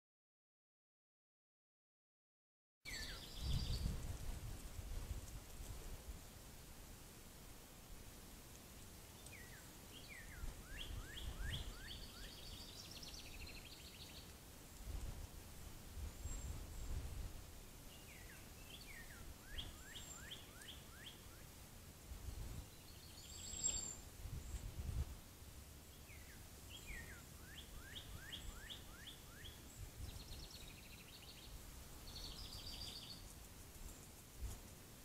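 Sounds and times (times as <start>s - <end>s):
songbird whistling phrase: 2.9s - 3.8s, 9.4s - 14.1s, 18.1s - 21.4s, 26.1s - 29.6s
faint buzzy bird calls: 2.9s - 35.0s
sharp high chirp: 23.4s - 24.0s.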